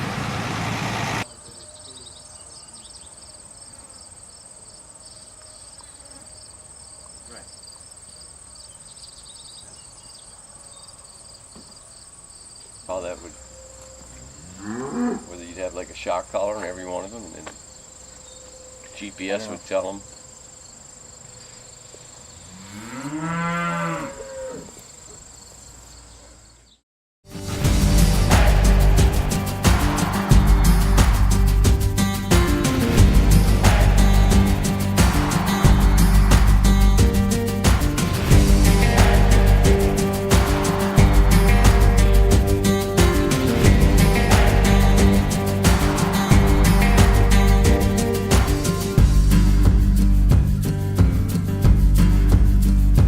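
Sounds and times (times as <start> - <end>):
insects chirping: 1.2 - 26.8
cow mooing: 14.4 - 15.5, 22.5 - 24.8
high insect buzz: 17.4 - 26.0, 27.3 - 49.2
loud steady noise: 27.3 - 48.8.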